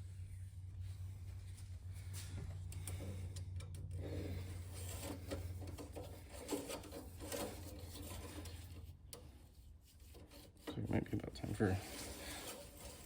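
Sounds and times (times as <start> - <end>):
steady low hum: 0.0 - 13.0
dipstick rubbing and scraping: 3.9 - 13.0.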